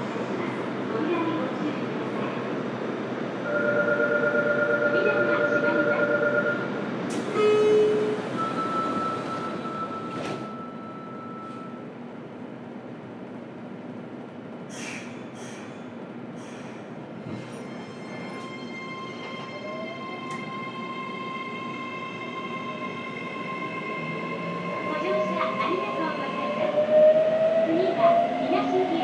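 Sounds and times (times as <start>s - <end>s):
long flat tone: 7.4s - 11.9s
short beep: 8.4s - 11.8s
short hisses: 14.7s - 15.8s.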